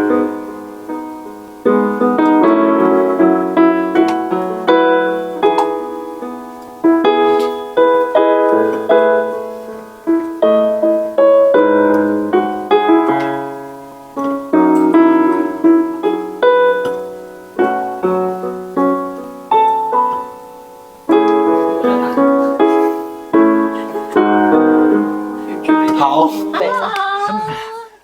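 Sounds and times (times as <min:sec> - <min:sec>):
solo piano ballad: 0:00.0 - 0:27.0.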